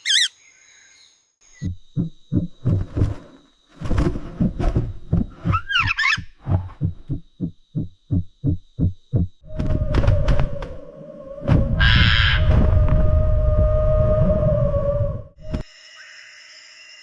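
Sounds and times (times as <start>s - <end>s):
low thuds: 1.6s - 10.8s
warbling bird call: 5.4s - 6.7s, 9.4s - 12.6s.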